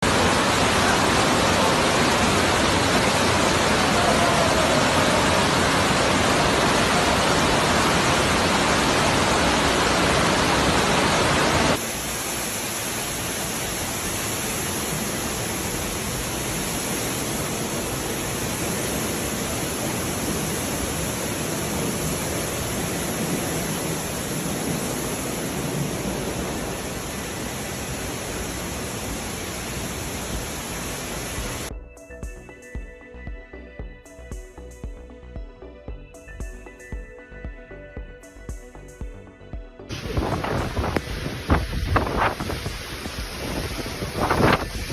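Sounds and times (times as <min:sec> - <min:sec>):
heavy rainstorm: 0:00.0 - 0:31.7, 0:39.9 - 0:44.9
running water: 0:00.0 - 0:31.7, 0:39.9 - 0:44.9
music: 0:31.7 - 0:44.9.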